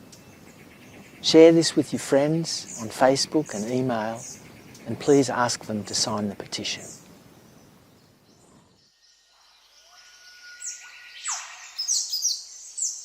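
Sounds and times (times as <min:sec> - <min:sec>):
high background hiss: 0:00.0 - 0:13.0
downward-sweeping bird chirps: 0:08.0 - 0:13.0.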